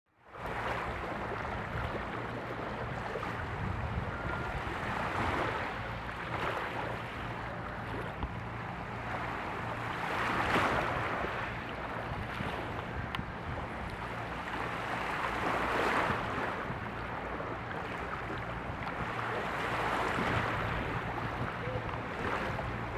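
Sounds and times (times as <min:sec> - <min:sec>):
low ship engine hum: 0:00.1 - 0:22.9
wind noise: 0:02.8 - 0:05.8, 0:18.6 - 0:22.9.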